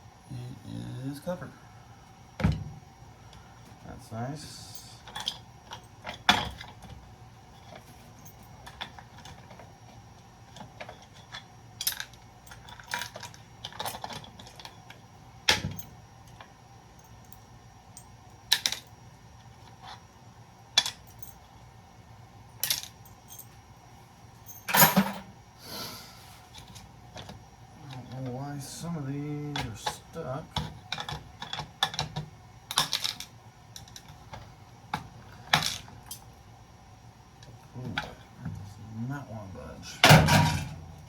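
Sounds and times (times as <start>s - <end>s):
small metal parts clinking: 10.5s - 14.9s, 18.5s - 18.9s, 22.6s - 23.5s, 32.7s - 34.1s.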